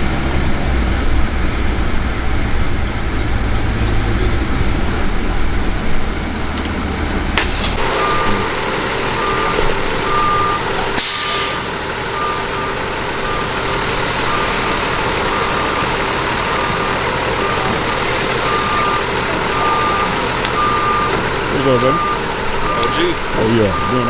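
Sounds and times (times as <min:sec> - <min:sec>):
heavy vehicle engine running: 0:00.0 - 0:24.0
backup alarm beeping: 0:07.8 - 0:24.0
air hiss: 0:11.0 - 0:11.8.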